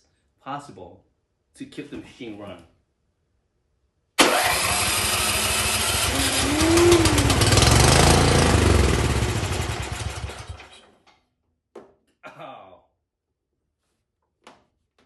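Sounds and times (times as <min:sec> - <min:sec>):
snowblower engine sputtering: 0:04.2 - 0:10.7.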